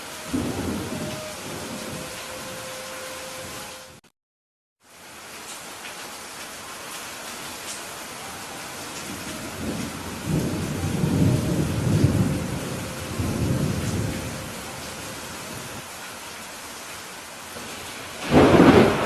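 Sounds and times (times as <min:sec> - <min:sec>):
heavy rain: 0:00.0 - 0:04.1, 0:04.8 - 0:19.0
rolling thunder: 0:00.3 - 0:02.6, 0:09.0 - 0:15.8, 0:17.6 - 0:19.0.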